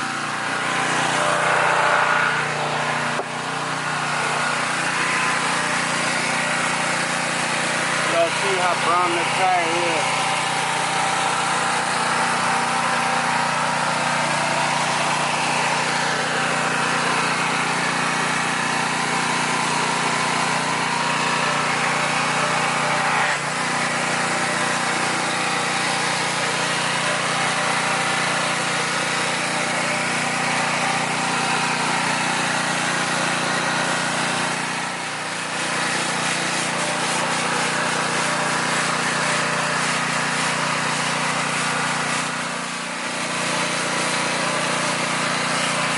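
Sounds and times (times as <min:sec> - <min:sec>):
small engine humming: 0:00.0 - 0:45.9.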